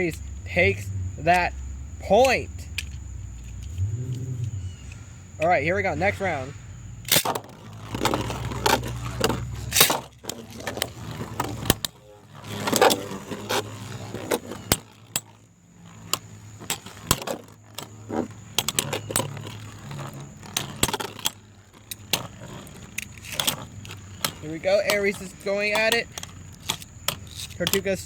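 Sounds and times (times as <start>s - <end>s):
low steady hum: 0.0s - 7.2s
plastic clicks and clatter: 2.1s - 3.8s, 7.0s - 11.9s, 16.0s - 28.0s.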